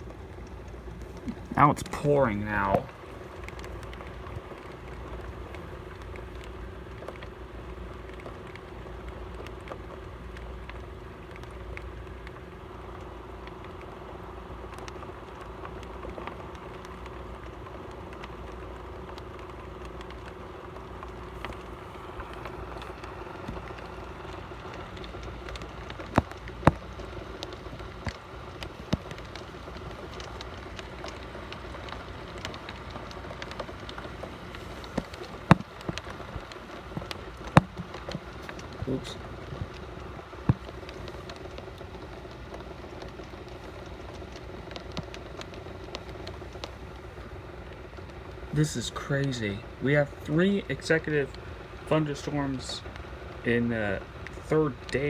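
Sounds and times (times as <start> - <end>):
heavy rain pouring: 0.0 - 55.0
sharp taps: 34.5 - 38.8.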